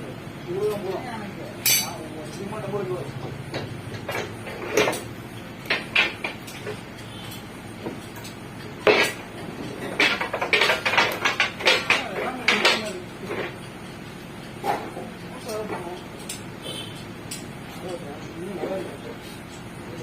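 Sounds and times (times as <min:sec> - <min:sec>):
metal clanks: 0:01.6 - 0:02.0, 0:03.5 - 0:13.7.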